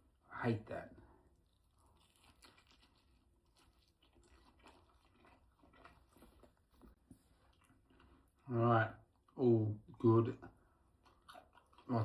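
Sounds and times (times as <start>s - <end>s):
person chewing a snack: 1.3s - 8.4s, 10.9s - 12.0s.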